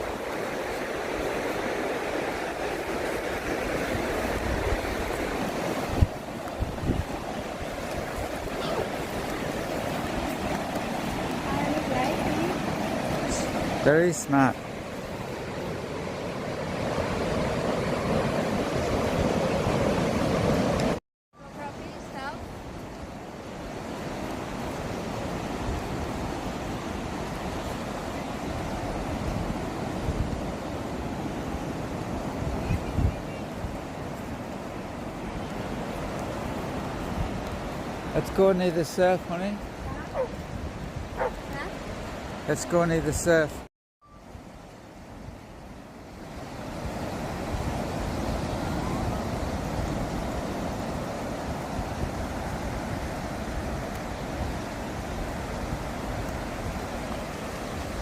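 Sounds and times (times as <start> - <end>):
wind rumbling on microphone: 0.0 - 13.9, 21.6 - 38.2, 39.5 - 42.5
ocean waves on a beach: 0.0 - 58.0.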